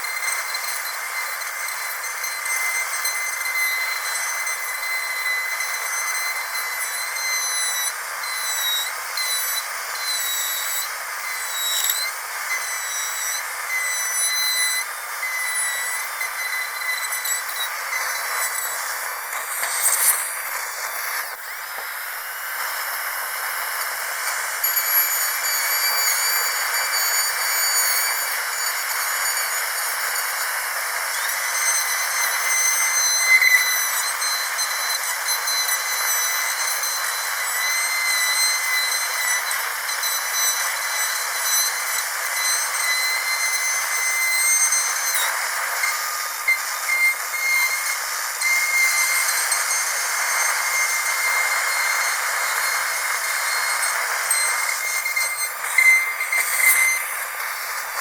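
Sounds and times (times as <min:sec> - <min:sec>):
dental drill whining: 0:00.0 - 0:58.0.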